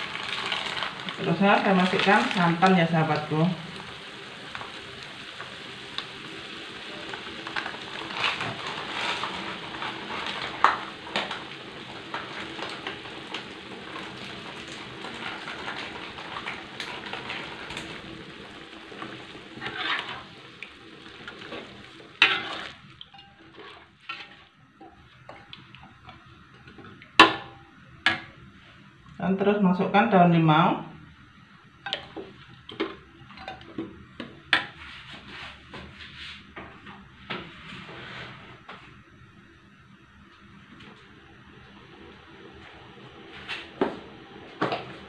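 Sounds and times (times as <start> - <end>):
food sizzling in a wok: 0.0 - 29.0, 31.3 - 36.5
metal spatula scraping a wok: 19.5 - 20.5, 21.5 - 24.5.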